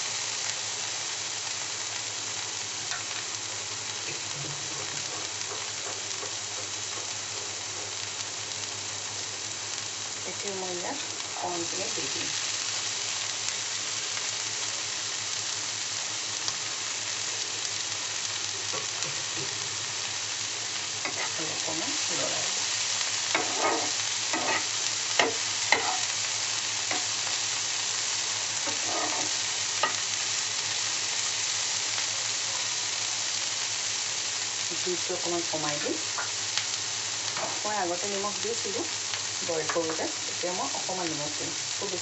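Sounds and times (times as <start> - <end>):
food sizzling in a wok: 0.0 - 42.0
wooden spatula scraping a pan: 23.3 - 26.1, 28.6 - 30.0.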